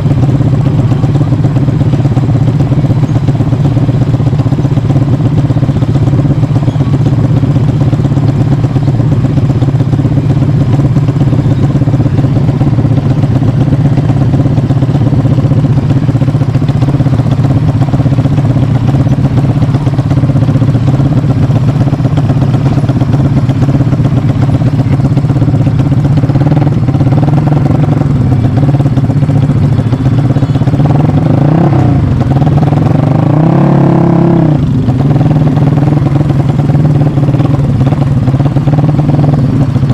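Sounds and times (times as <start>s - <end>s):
motorcycle engine idling: 0.0s - 39.9s
motorcycle engine revving: 0.0s - 39.9s.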